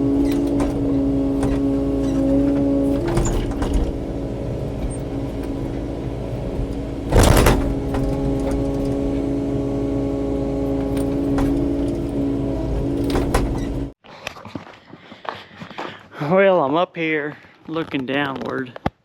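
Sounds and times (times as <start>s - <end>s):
excavator diesel engine running: 0.0s - 14.0s
loud short impact: 1.4s - 9.2s.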